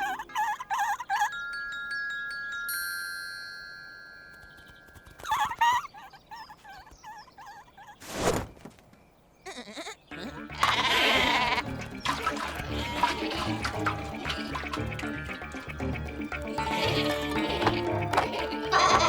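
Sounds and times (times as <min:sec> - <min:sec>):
bright chime ringing: 0:01.2 - 0:05.6.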